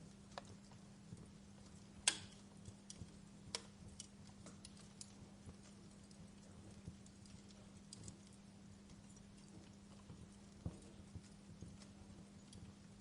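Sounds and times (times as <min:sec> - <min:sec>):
faint low hum: 0:00.0 - 0:13.0
wood fire crackling: 0:00.0 - 0:13.0.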